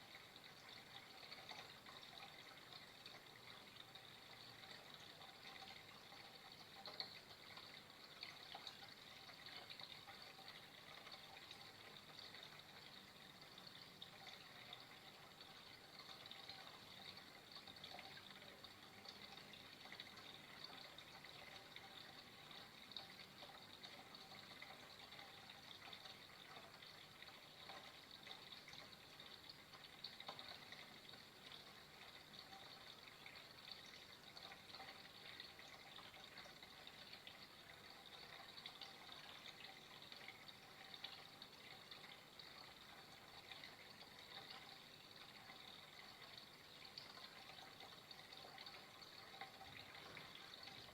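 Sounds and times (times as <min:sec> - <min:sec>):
running water: 0:00.0 - 0:50.9
water splashes and drips: 0:00.0 - 0:50.9.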